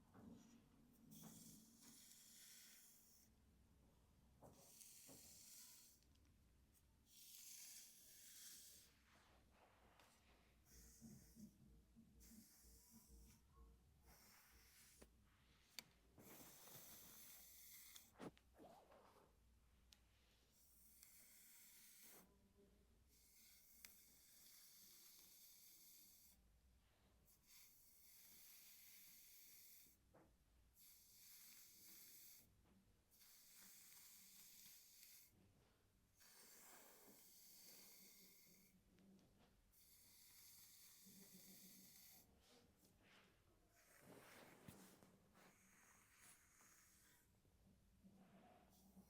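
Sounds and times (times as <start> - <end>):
hairbrush strokes through hair: 4.5 - 6.0, 14.1 - 18.4, 36.2 - 38.7, 39.8 - 47.3.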